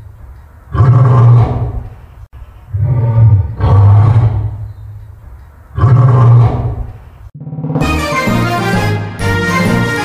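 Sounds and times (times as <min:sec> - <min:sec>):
lion roaring: 0:00.7 - 0:01.9, 0:02.7 - 0:04.7, 0:05.8 - 0:07.8.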